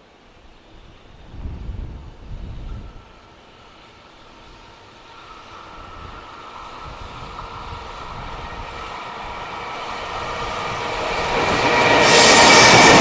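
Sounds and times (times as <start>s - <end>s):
freight train passing: 0.0s - 13.0s
thin high whine: 0.7s - 13.0s.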